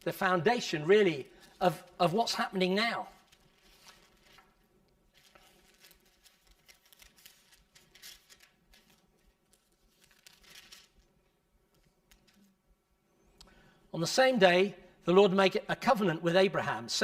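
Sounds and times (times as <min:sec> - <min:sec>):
book pages turning: 0:03.1 - 0:11.1, 0:11.7 - 0:12.6.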